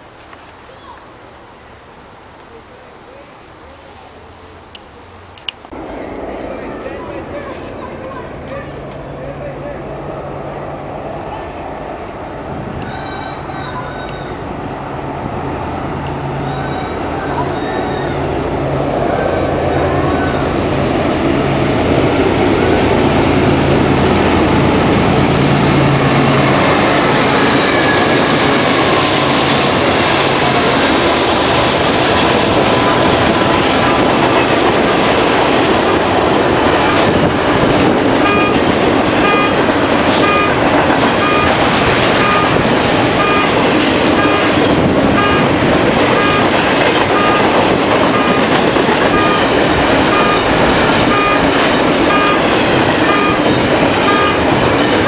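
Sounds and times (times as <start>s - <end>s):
diesel locomotive passing: 3.6s - 55.0s
train wheels rolling on rails: 5.3s - 55.0s
short high beeps: 38.2s - 38.6s, 39.2s - 40.6s, 41.2s - 42.6s, 43.2s - 43.6s, 44.2s - 44.6s, 45.2s - 54.5s.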